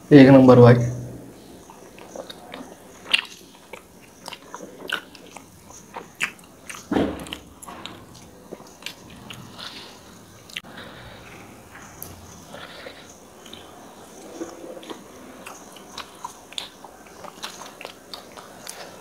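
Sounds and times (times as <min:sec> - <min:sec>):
chewing mouth sounds: 0:01.6 - 0:10.7, 0:11.7 - 0:19.0.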